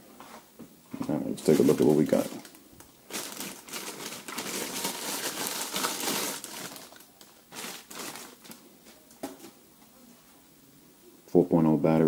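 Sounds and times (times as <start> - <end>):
packaging rustling and crinkling: 1.4 - 9.0.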